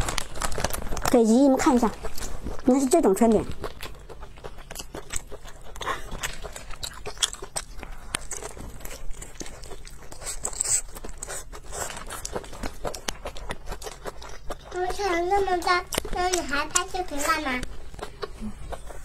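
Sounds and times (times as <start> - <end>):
chewing and biting pancake: 0.0 - 19.0.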